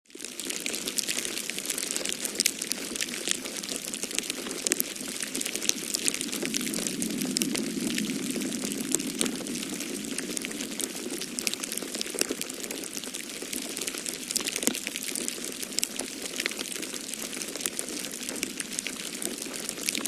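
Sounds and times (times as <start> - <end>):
wood fire crackling: 0.2 - 20.0.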